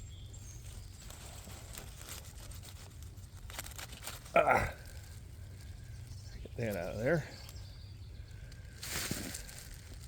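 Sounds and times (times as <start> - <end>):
lettuce rustling and crackling: 0.8 - 5.8, 8.8 - 10.0.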